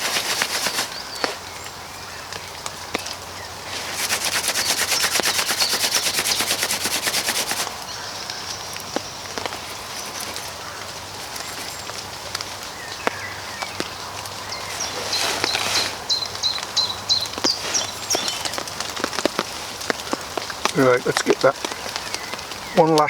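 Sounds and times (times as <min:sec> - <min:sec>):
bark rubbed in hands rasping: 0:00.0 - 0:01.4, 0:03.7 - 0:07.7, 0:09.5 - 0:11.8, 0:14.6 - 0:16.2
steady hiss: 0:00.0 - 0:23.0.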